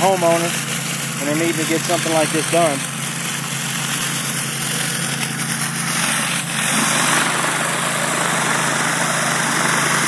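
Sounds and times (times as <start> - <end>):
pressure washer engine humming: 0.0 - 10.0
water spraying onto concrete: 0.0 - 10.0.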